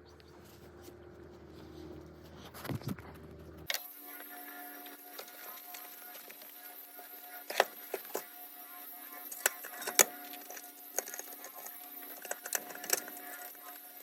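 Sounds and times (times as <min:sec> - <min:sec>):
tools and parts clicking: 0:07.3 - 0:08.4, 0:09.1 - 0:14.0.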